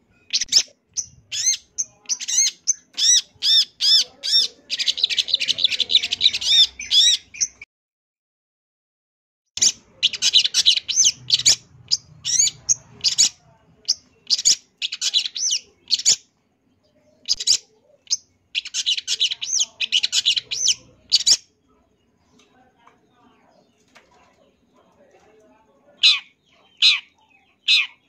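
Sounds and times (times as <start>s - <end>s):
bird singing fast varied song: 0.0s - 7.6s, 9.6s - 22.2s.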